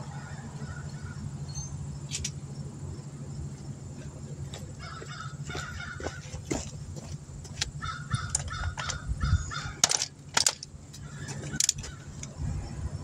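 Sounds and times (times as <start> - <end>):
crows cawing: 0.0 - 1.3, 4.8 - 6.4, 7.8 - 10.0, 11.0 - 12.2
steady low hum: 0.0 - 13.0.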